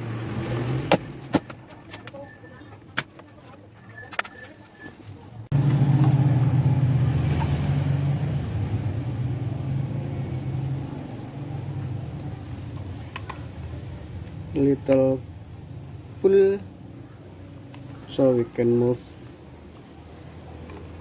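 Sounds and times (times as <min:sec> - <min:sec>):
car running hum: 0:00.0 - 0:03.5, 0:04.1 - 0:13.9.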